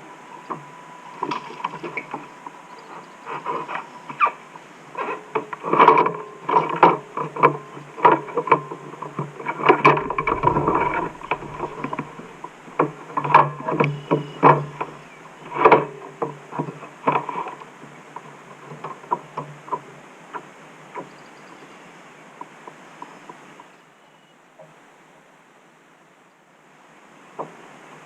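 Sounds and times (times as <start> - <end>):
low rumble: 9.9 - 13.7.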